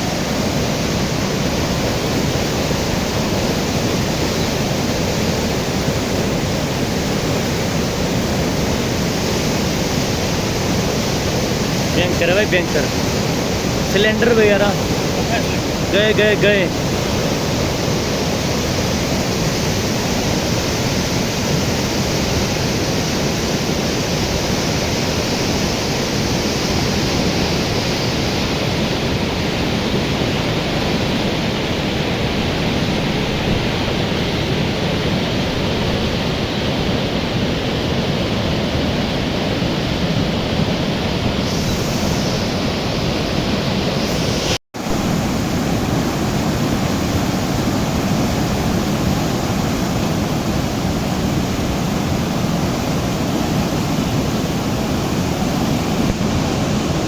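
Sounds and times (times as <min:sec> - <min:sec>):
river rushing in torrent: 0:00.0 - 0:57.0.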